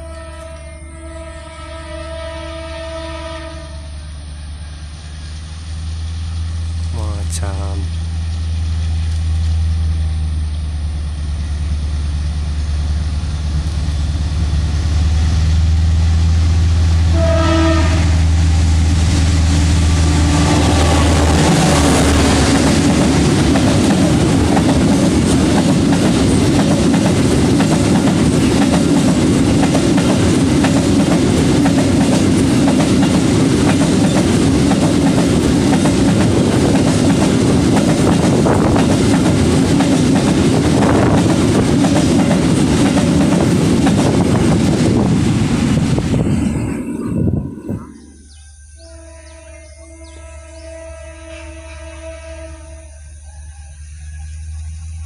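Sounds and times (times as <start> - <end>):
locomotive horn blast: 0.0 - 4.0, 17.0 - 18.4, 20.0 - 22.7, 48.8 - 53.1
wagons rumbling on rails: 0.0 - 51.4
locomotive engine humming: 0.0 - 53.1.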